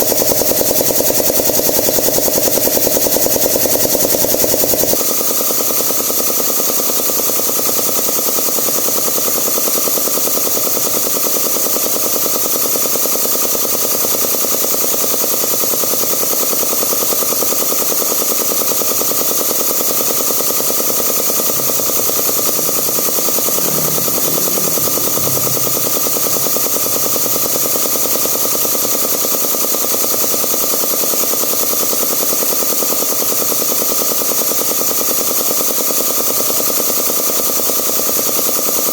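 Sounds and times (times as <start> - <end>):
air compressor running: 19.2 - 29.6.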